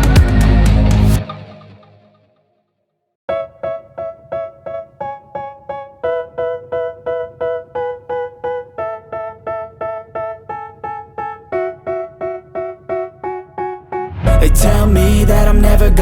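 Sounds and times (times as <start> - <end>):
keyboard repeated chords: 3.3 - 16.0.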